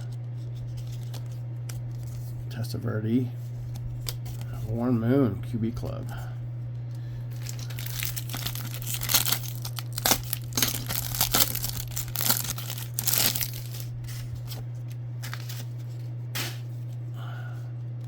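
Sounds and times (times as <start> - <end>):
steady low hum: 0.0 - 18.0
wrapper tearing and crinkling: 7.3 - 14.6, 15.2 - 15.8.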